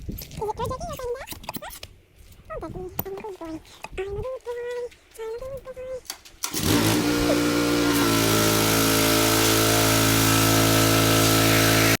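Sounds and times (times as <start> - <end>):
motor humming: 6.4 - 12.0.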